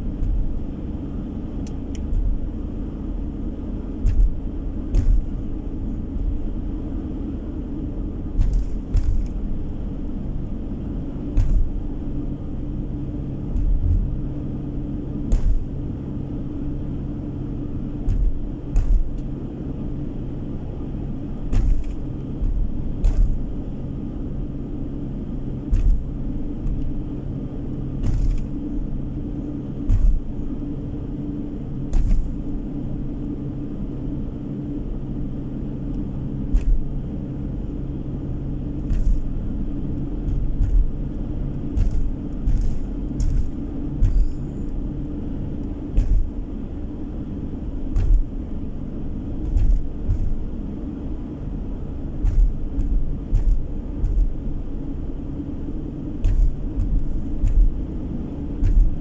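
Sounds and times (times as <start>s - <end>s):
car engine and road drone: 0.0s - 59.0s
short knocks: 3.9s - 6.5s, 8.3s - 9.8s, 11.3s - 14.4s, 15.0s - 15.9s, 18.0s - 19.4s, 21.4s - 23.6s, 25.6s - 27.0s, 38.8s - 44.8s, 45.6s - 46.9s, 47.8s - 51.2s, 52.1s - 54.9s, 55.5s - 59.0s.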